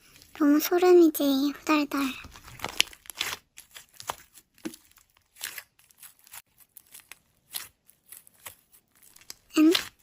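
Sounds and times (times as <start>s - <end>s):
slime squishing by hand: 2.0s - 10.0s.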